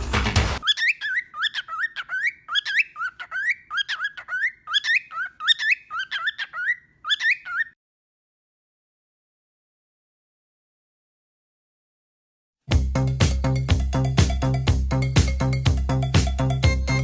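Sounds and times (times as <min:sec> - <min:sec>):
cockatiel whistled chirps: 0:00.6 - 0:07.8.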